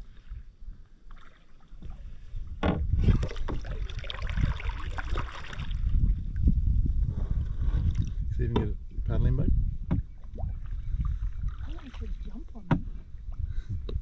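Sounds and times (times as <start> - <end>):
paddle strokes splashing in water: 1.0 - 2.4, 3.0 - 6.0, 10.3 - 13.2
low rumble: 2.4 - 14.0.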